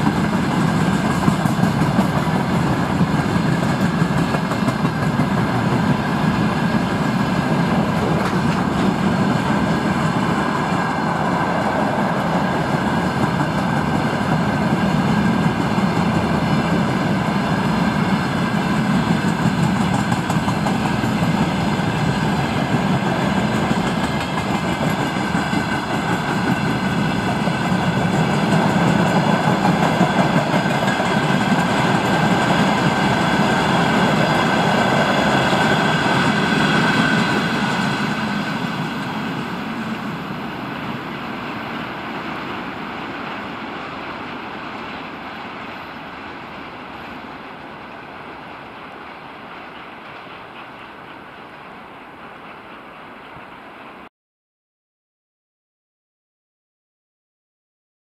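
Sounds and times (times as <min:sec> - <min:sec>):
train wheels rumbling: 0:00.0 - 0:54.1.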